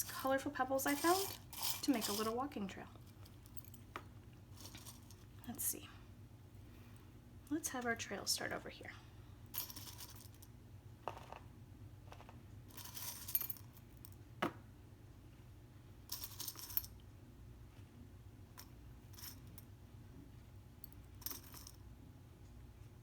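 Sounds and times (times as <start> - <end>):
pebbles clinking: 0.0 - 2.4.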